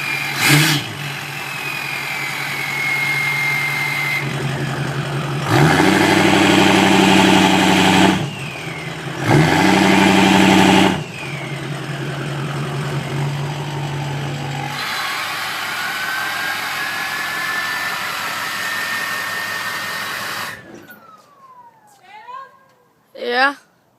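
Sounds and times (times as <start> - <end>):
turbo whistle: 0.0 - 4.3
diesel truck engine idling and revving: 0.0 - 21.9.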